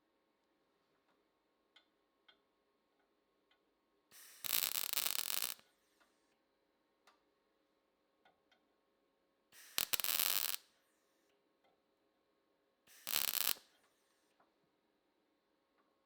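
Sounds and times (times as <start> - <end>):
welding crackle: 4.2 - 5.6, 9.6 - 10.6, 13.0 - 13.6
small clicks: 4.2 - 6.1, 9.6 - 10.6, 13.0 - 13.9.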